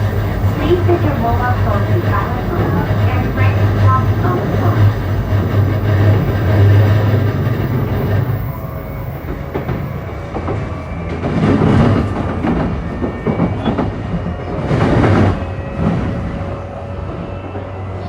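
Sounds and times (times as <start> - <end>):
train motor hum: 0.0 - 13.2
wheel and rail noise: 0.0 - 18.0.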